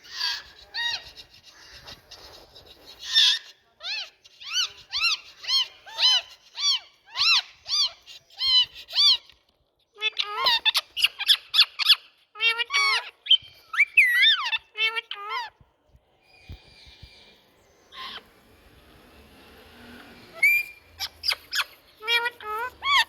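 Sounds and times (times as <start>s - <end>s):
parakeet shrill calls: 0.0s - 9.3s, 17.9s - 18.5s, 20.3s - 23.0s.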